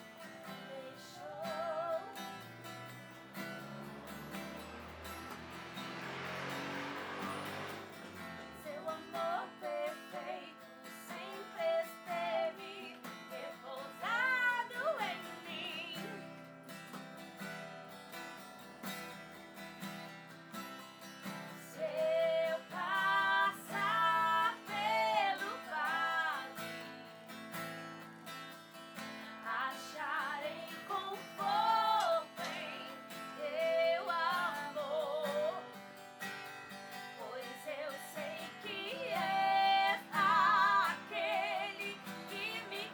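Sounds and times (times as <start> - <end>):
woman singing: 0.0 - 2.5, 8.5 - 16.4, 21.5 - 27.2, 29.3 - 35.9, 37.0 - 42.9
strummed acoustic guitar: 0.0 - 42.9.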